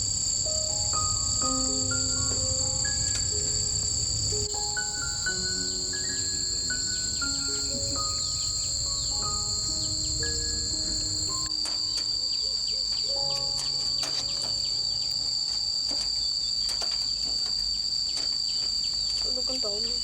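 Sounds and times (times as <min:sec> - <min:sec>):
soft background music: 0:00.0 - 0:16.7
insects chirring: 0:00.0 - 0:20.0.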